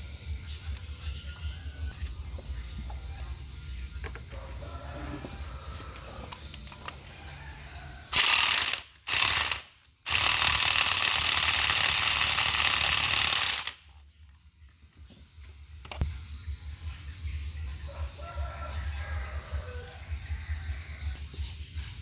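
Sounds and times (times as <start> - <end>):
loud mechanical whirring: 8.1 - 13.9.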